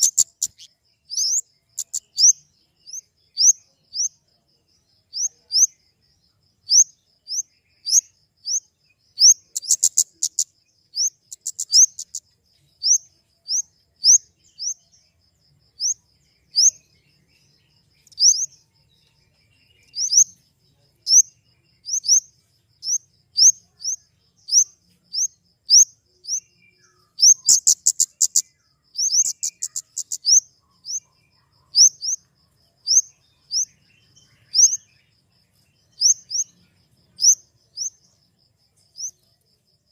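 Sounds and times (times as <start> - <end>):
bird high upslurred calls: 0.0 - 4.2, 6.7 - 14.9, 15.8 - 16.9, 18.0 - 18.6, 19.8 - 20.4, 21.0 - 34.9.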